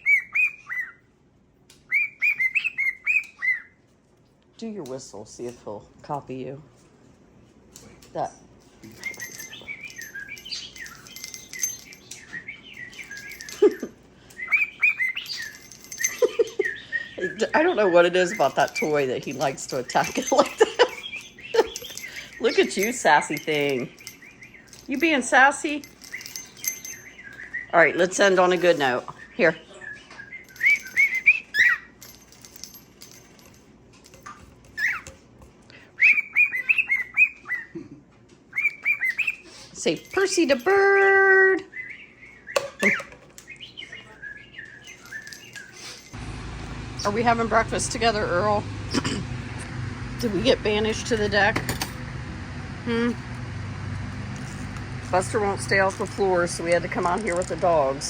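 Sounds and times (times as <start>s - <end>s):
parrot whistling: 0.0s - 1.0s, 1.9s - 3.8s, 14.4s - 15.6s, 36.0s - 37.7s, 38.5s - 39.4s
pet bird singing: 0.0s - 1.1s, 1.9s - 3.8s, 9.0s - 32.0s, 36.0s - 37.8s, 38.5s - 46.0s.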